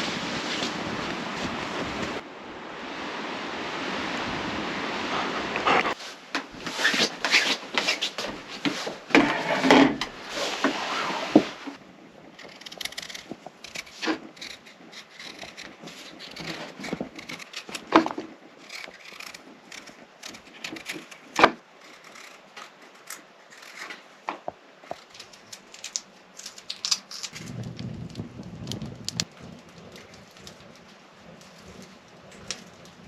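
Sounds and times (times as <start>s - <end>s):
small clicks taps and crackles: 12.4s - 33.0s.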